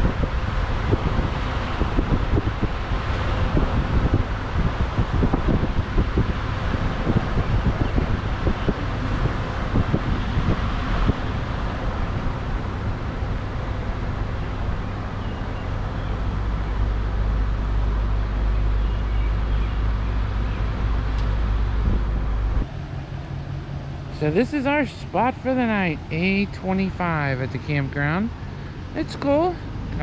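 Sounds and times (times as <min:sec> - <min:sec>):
vehicle road noise rumble: 0:00.0 - 0:30.0
wind buffeting microphone: 0:00.0 - 0:30.0.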